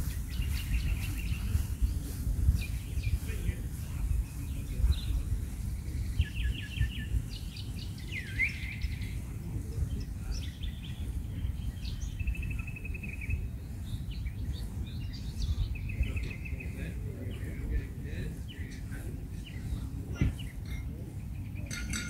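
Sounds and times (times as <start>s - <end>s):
steady low rumble: 0.0s - 22.0s
birds trilling: 4.6s - 22.0s.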